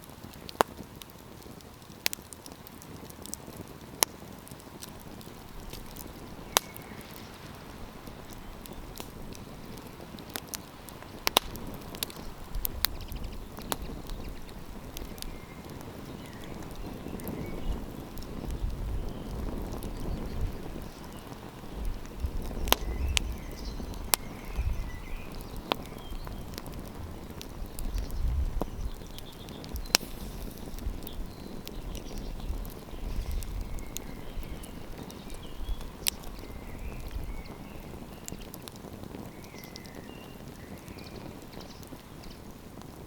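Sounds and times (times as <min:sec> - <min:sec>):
campfire crackling and popping: 0:00.0 - 0:43.0
wind rumble on microphone: 0:02.9 - 0:43.0
faint bird chirps: 0:18.5 - 0:38.6, 0:39.3 - 0:42.4.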